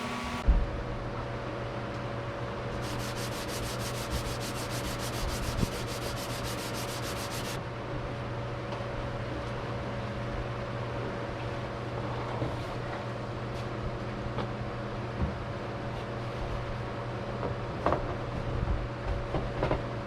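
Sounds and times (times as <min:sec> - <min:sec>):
steady low hum: 0:00.0 - 0:19.4
sanding fiberglass: 0:02.8 - 0:07.6.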